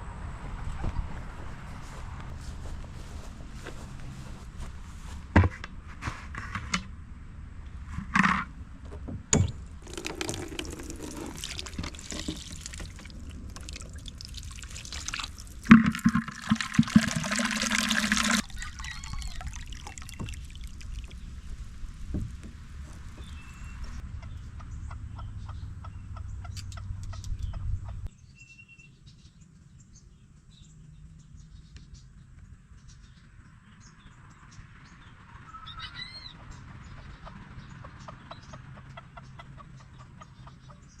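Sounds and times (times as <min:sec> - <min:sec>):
chickens clucking: 0:35.6 - 0:40.9.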